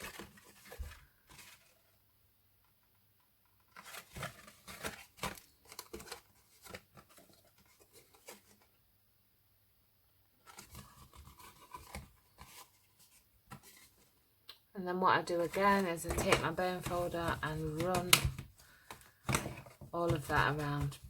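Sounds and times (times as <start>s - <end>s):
card scraping and rustling: 0.0s - 1.9s, 3.6s - 8.7s, 10.4s - 14.1s, 15.3s - 21.0s.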